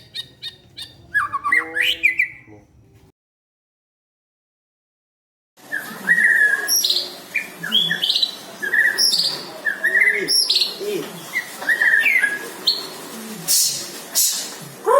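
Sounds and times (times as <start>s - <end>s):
bird singing chirping phrases: 0.0s - 2.8s, 5.6s - 13.0s.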